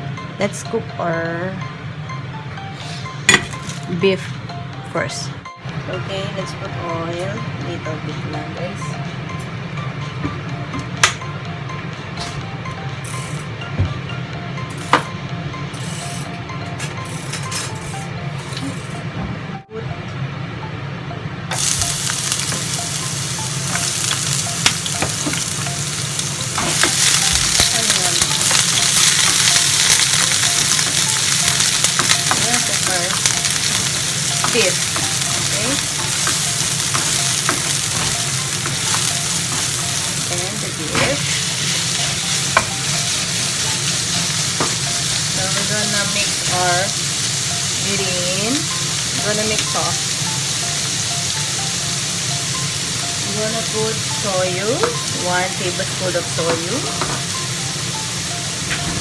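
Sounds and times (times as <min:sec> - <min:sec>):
meat sizzling in hot oil: 0:21.6 - 0:53.3.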